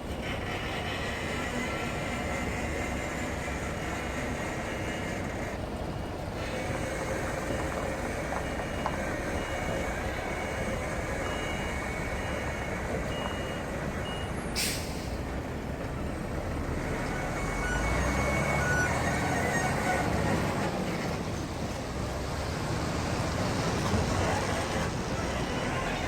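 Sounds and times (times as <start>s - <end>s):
reversing alarm beeping: 7.4s - 14.4s, 17.2s - 19.9s
air brakes hissing: 14.5s - 15.3s.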